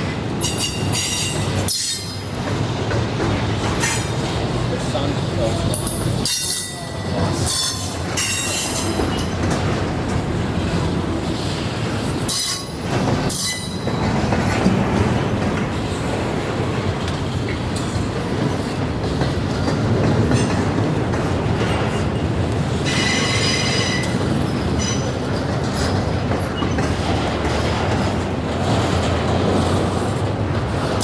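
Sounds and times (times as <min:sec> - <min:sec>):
train railcars clattering: 0:00.0 - 0:31.0
train wheels squealing: 0:00.4 - 0:02.4, 0:05.8 - 0:09.4, 0:12.3 - 0:14.1, 0:22.8 - 0:25.1.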